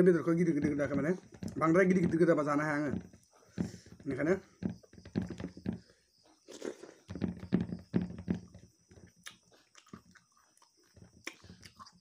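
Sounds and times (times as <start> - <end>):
man chewing food: 4.8 - 12.0.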